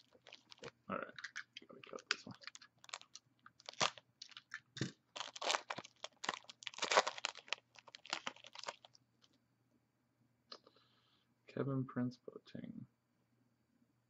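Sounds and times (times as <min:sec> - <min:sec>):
wrapper crinkling: 0:00.0 - 0:09.0.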